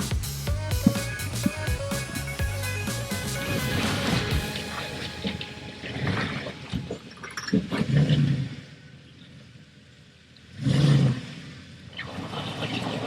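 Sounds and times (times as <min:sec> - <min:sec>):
engine revving: 0:00.0 - 0:06.9.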